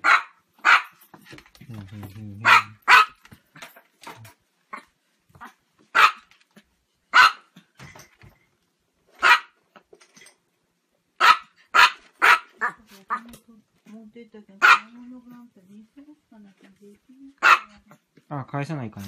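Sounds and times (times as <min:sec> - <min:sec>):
dog barking: 0:00.0 - 0:01.0, 0:02.4 - 0:03.2, 0:05.9 - 0:06.3, 0:07.1 - 0:07.5, 0:09.2 - 0:09.6, 0:11.2 - 0:13.2, 0:14.6 - 0:15.0, 0:17.4 - 0:18.0.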